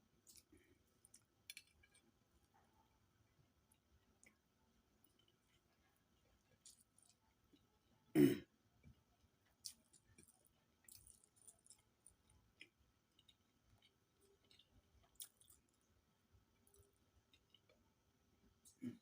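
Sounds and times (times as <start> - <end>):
soft chewing: 0.0 - 19.0
person coughing: 8.2 - 8.5.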